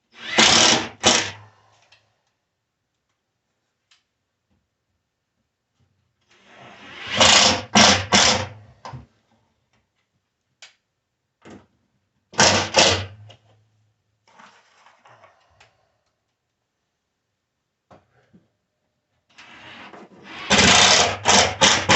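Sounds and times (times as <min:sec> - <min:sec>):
power driver driving screws: 0:00.2 - 0:01.4, 0:06.9 - 0:08.6, 0:19.6 - 0:21.9.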